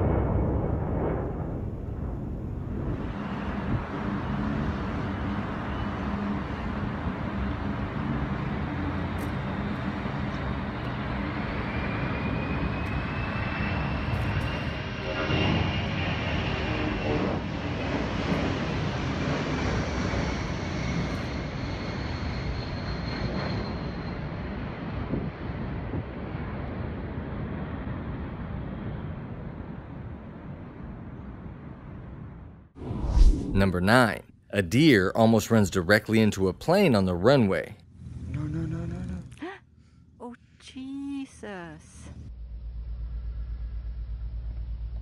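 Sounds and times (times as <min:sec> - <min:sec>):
high jet whine: 0:00.0 - 0:27.9, 0:32.8 - 0:39.4
military aircraft engine roar: 0:00.0 - 0:39.4.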